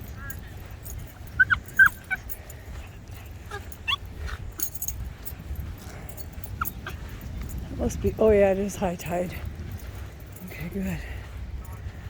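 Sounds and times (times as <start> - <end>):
dog whining and yelping: 0.2 - 4.3, 6.3 - 7.3.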